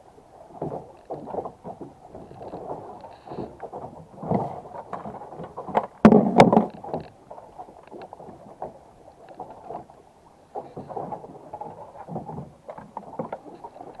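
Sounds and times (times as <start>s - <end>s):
gear knocking and rubbing on boat: 0.5s - 8.8s.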